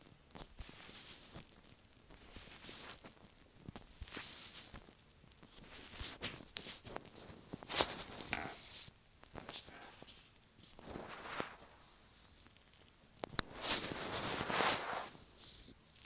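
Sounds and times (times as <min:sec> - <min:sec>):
sharp scrape on microphone: 0:13.4 - 0:15.8.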